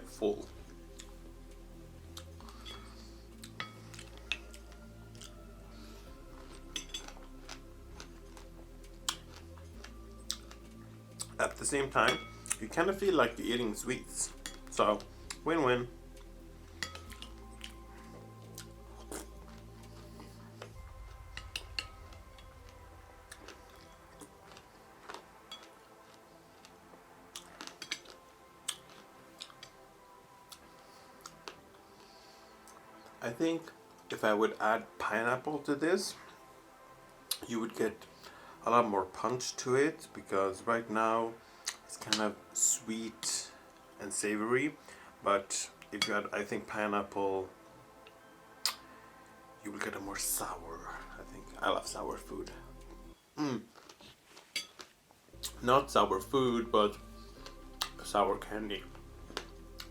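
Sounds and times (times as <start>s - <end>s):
faint chewing of fruit: 2.0s - 12.8s, 16.1s - 29.8s, 30.4s - 34.1s, 41.4s - 42.6s, 52.2s - 55.6s, 57.0s - 59.9s
metal spoon clinking bowl: 6.7s - 7.2s, 12.1s - 12.4s.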